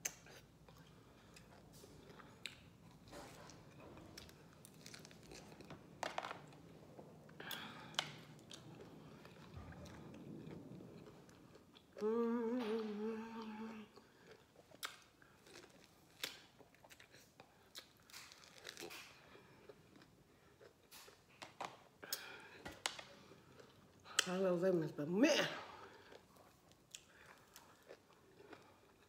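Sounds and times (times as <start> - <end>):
person chewing lemon: 0.0 - 21.4, 25.7 - 29.0
woman humming: 12.0 - 13.9.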